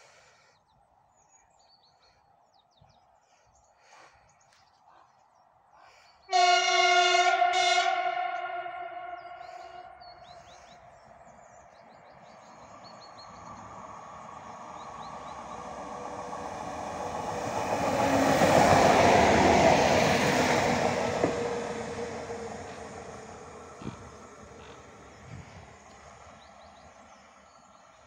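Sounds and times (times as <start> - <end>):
diesel train passing at speed: 5.9 - 28.0.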